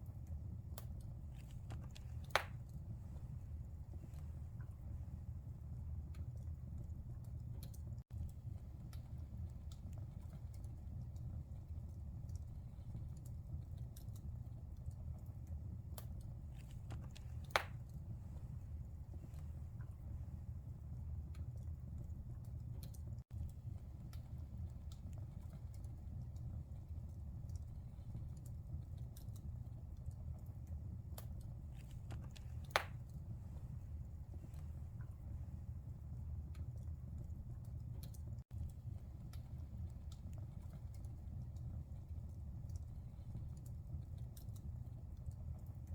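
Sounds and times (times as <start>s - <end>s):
fire crackles: 0.0s - 45.9s
fire rumbling in fireplace: 0.0s - 45.9s
sharp pop of burning wood: 1.8s - 2.6s, 17.0s - 17.8s, 32.1s - 33.0s
loud pop of fire: 32.6s - 33.0s.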